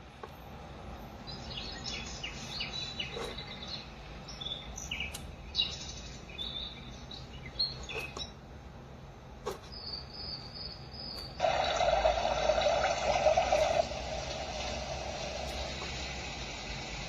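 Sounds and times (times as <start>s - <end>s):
bird chirps and trills: 0.4s - 8.4s, 9.4s - 14.2s.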